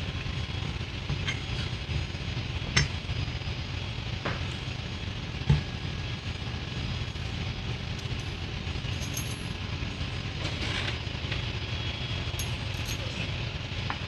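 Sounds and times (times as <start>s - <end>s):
engine machinery droning: 0.0s - 14.0s
light metallic clinks: 7.9s - 9.6s, 12.2s - 14.0s.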